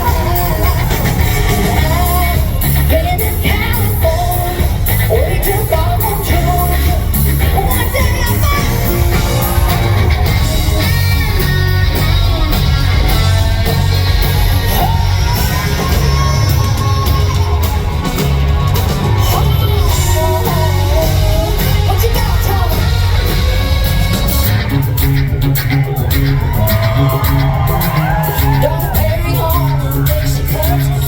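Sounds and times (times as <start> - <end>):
person singing: 0.0 - 25.0, 25.8 - 31.0
drums: 0.0 - 31.0
electric guitar: 0.0 - 31.0
live band playing loudly: 0.0 - 31.0.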